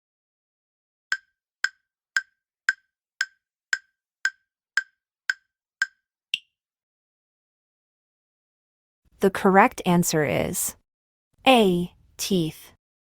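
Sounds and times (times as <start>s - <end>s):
wooden timer ticks: 1.1s - 6.5s.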